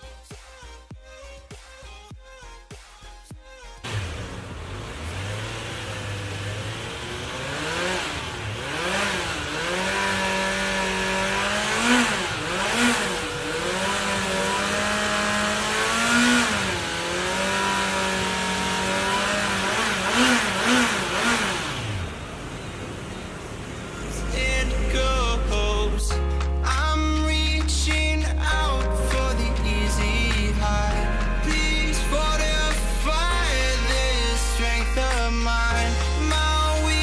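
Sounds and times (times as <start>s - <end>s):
motorcycle engine idling and revving: 3.8s - 27.2s, 27.8s - 37.0s.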